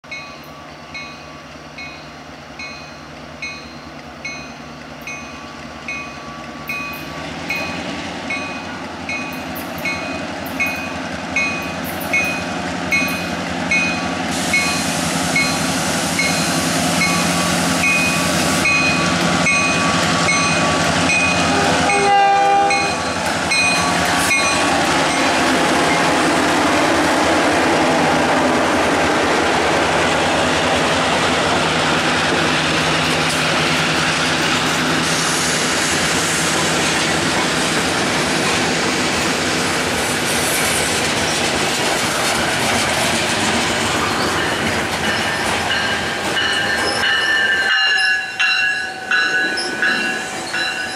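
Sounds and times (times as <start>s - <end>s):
diesel locomotives passing: 0.0s - 50.9s
locomotive horn toot: 21.4s - 23.0s
bell dinging: 44.4s - 50.9s.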